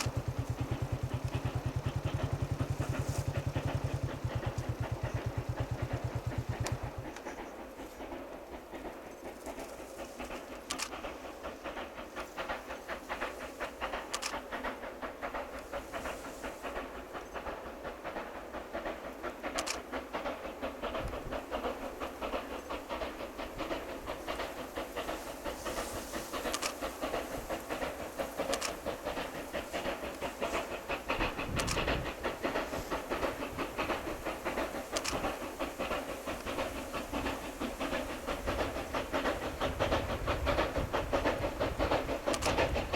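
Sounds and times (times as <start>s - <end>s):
steam hiss: 0.0s - 42.9s
steam locomotive chuffing: 0.0s - 42.9s.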